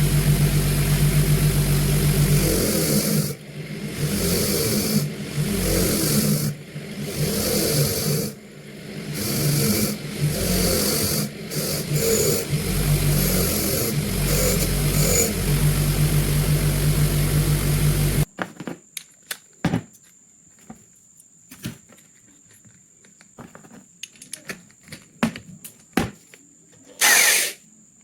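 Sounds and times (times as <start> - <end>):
power tool motor humming: 0.0 - 18.3, 27.0 - 27.6.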